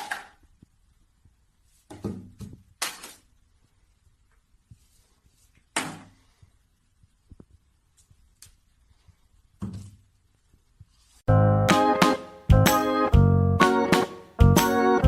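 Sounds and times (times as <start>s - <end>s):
loud music: 11.3s - 15.0s.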